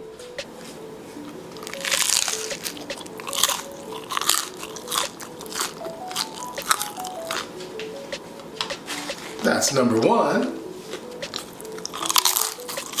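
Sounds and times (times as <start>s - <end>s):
person chewing crunchy food: 1.6s - 7.5s, 11.3s - 13.0s.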